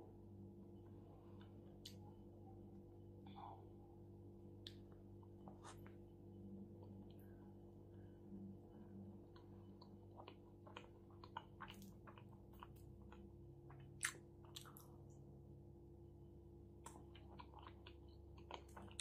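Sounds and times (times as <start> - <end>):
person chewing food: 9.2 - 15.2, 16.8 - 19.0.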